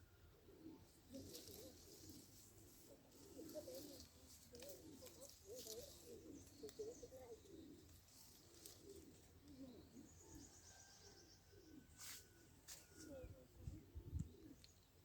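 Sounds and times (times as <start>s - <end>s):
faint bird cooing: 0.0s - 15.0s.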